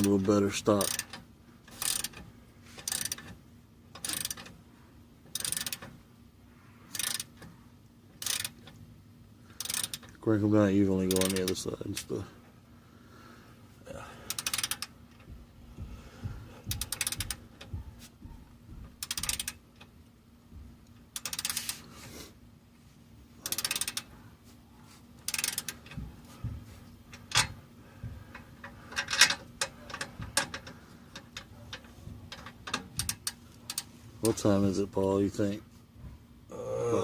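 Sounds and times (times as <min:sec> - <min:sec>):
ratchet wrench clicking: 0:00.0 - 0:04.6, 0:05.3 - 0:05.9, 0:06.9 - 0:07.5, 0:08.2 - 0:08.8, 0:09.6 - 0:10.2, 0:11.0 - 0:12.1, 0:14.3 - 0:15.3, 0:16.6 - 0:17.7, 0:19.0 - 0:19.9, 0:20.9 - 0:21.9, 0:23.4 - 0:24.1, 0:25.2 - 0:26.0, 0:27.1 - 0:27.6, 0:28.3 - 0:33.9.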